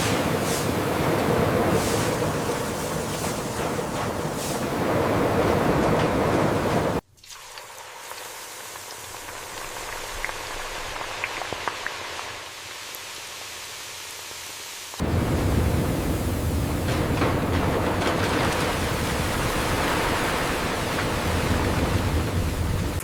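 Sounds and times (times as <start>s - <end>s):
rain-like hiss: 0.0s - 23.0s.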